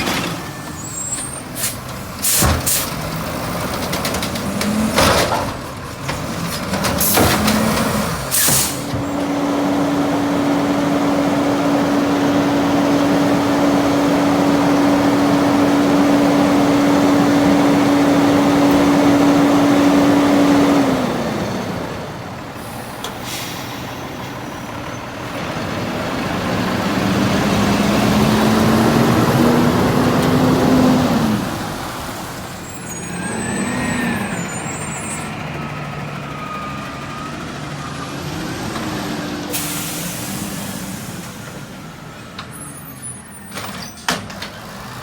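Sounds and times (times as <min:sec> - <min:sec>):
heavy trucks passing: 0:00.0 - 0:45.0
air brake hisses: 0:00.8 - 0:02.9, 0:08.3 - 0:09.0, 0:22.6 - 0:24.1, 0:39.5 - 0:41.5.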